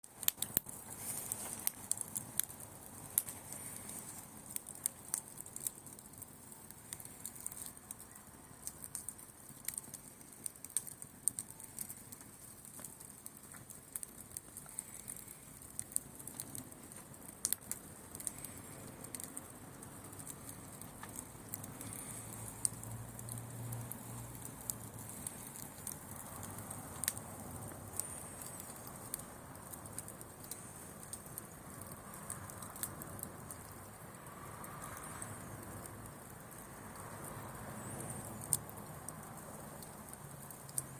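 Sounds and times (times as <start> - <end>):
bonfire crackling and popping: 0.0 - 40.9.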